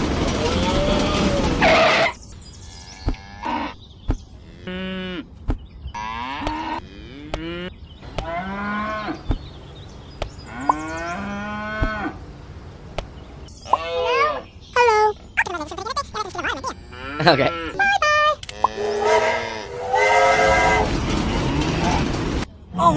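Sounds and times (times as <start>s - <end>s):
drawn-out animal-like calls: 15.4s - 22.2s.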